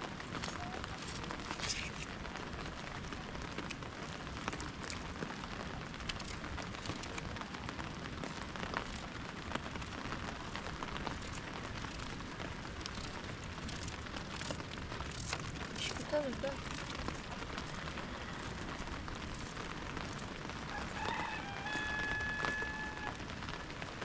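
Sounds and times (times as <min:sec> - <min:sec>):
raindrops ticking on surfaces: 0:00.0 - 0:24.0
steady rain falling: 0:00.0 - 0:24.0.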